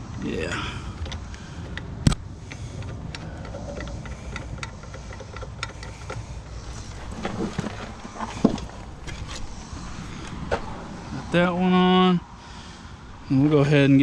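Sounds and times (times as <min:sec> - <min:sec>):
steady low rumble: 0:00.0 - 0:14.0
tools clicking and ticking: 0:01.0 - 0:06.9.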